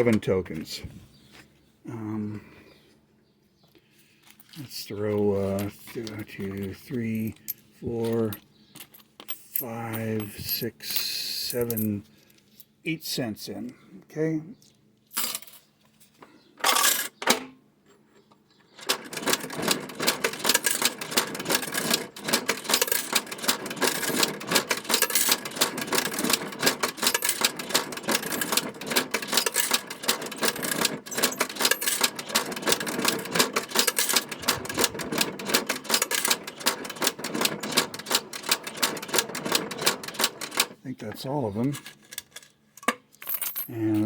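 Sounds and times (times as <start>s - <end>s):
coins clinking into fare box: 5.2s - 12.0s, 15.1s - 15.7s, 16.6s - 17.4s, 18.8s - 40.8s, 41.7s - 44.0s
coin mechanism rapid clicking: 16.7s - 17.2s, 18.8s - 40.8s, 42.1s - 43.7s.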